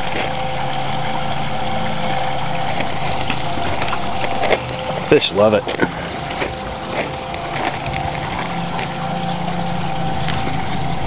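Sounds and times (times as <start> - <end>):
water dripping: 0.0 - 5.1
steady hum: 0.0 - 11.0.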